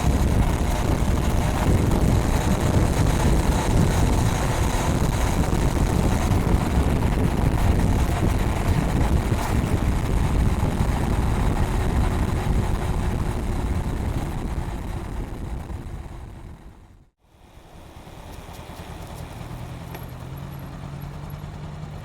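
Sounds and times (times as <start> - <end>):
wind rush on microphone: 0.0 - 17.1
motorcycle engine while riding: 0.0 - 22.0.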